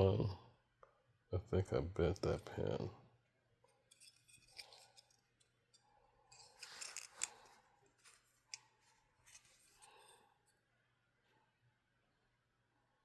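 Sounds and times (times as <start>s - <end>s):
small parts clicking and scraping: 3.6s - 10.6s.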